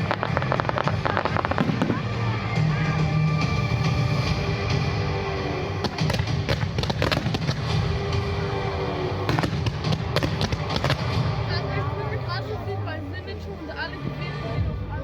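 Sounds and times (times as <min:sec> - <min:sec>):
fireworks bangs and crackles: 0:00.0 - 0:11.8
music: 0:00.0 - 0:15.0.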